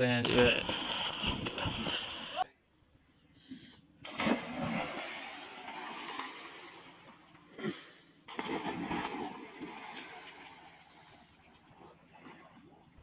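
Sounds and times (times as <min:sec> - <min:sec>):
water splashing: 0:00.3 - 0:02.4, 0:04.0 - 0:07.3, 0:08.3 - 0:13.0.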